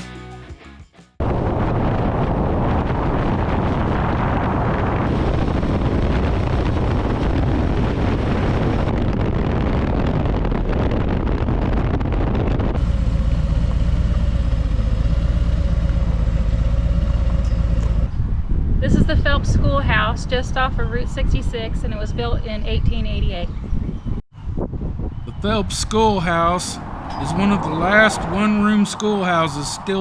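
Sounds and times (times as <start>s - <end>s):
wind rushing over microphone: 1.2s - 12.9s, 18.0s - 30.0s
motorcycle engine at road speed: 12.7s - 18.8s.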